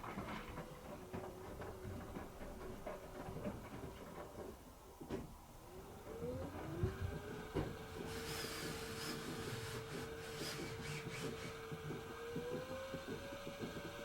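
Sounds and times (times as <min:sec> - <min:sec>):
washing machine motor whining: 0:06.1 - 0:14.0
knocks and clicks from drum: 0:10.4 - 0:14.0.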